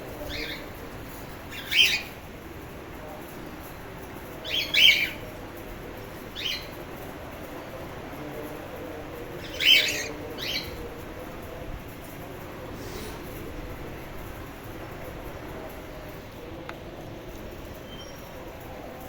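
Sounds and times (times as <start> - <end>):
cockatiels calling: 9.4 - 10.8.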